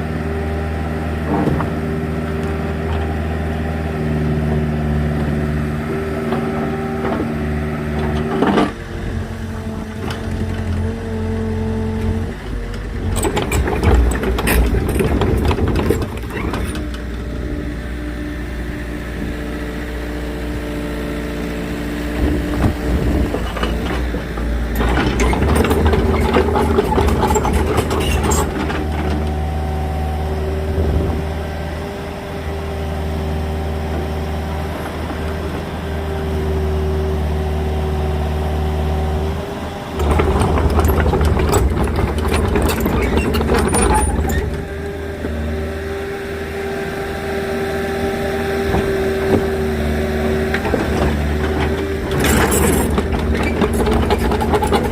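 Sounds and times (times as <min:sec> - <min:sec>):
excavator engine running: 0:00.0 - 0:54.9
clattering and crackling noise: 0:12.3 - 0:17.2, 0:22.3 - 0:29.4, 0:40.0 - 0:44.6, 0:50.5 - 0:54.9.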